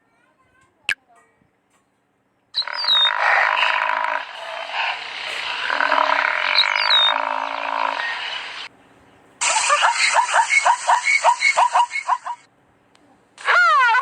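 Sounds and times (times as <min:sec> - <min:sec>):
frogs croaking in chorus: 0:02.6 - 0:04.2, 0:05.6 - 0:08.7.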